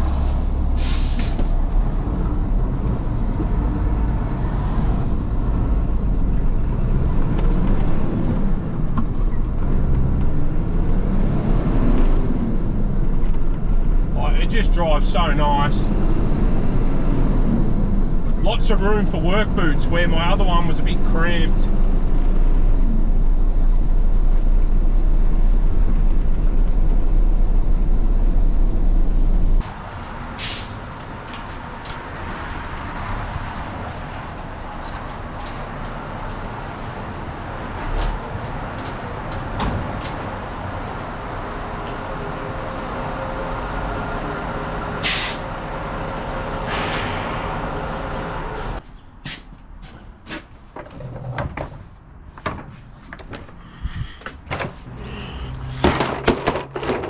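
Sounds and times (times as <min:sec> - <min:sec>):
diesel truck engine drone: 0:00.0 - 0:50.7, 0:53.2 - 0:57.0
compressed air hisses: 0:45.0 - 0:45.5.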